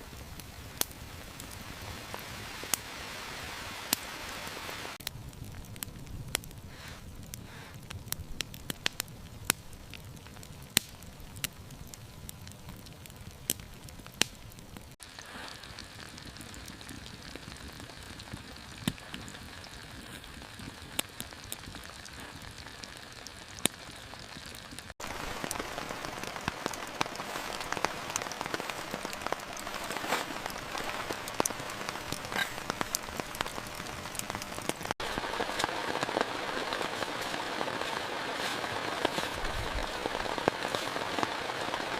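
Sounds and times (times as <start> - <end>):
rain falling: 0.0 - 7.3, 7.9 - 41.9
raindrops tapping: 13.6 - 41.9.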